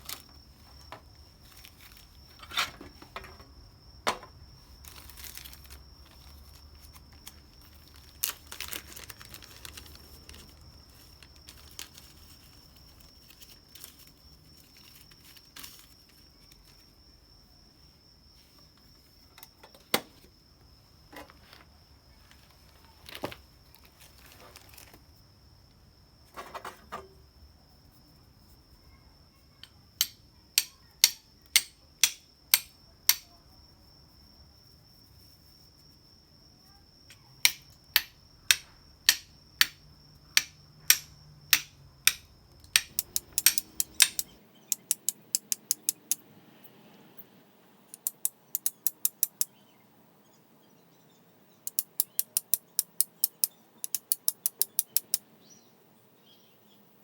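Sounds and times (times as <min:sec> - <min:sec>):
flint and steel striking: 0:30.0 - 0:33.3, 0:37.4 - 0:46.2.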